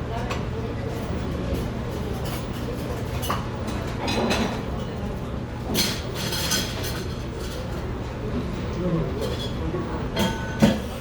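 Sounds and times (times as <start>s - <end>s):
dishes and cutlery clinking: 2.0s - 5.0s, 5.7s - 7.8s, 9.2s - 9.6s, 10.2s - 11.0s.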